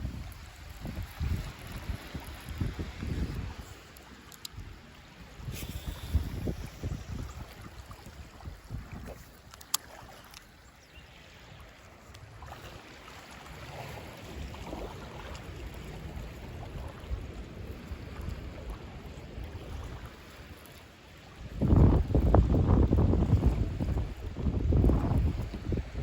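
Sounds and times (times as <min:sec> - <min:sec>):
wind buffeting microphone: 0:00.0 - 0:03.9, 0:04.5 - 0:09.5, 0:21.4 - 0:26.0
lake water lapping: 0:00.0 - 0:26.0.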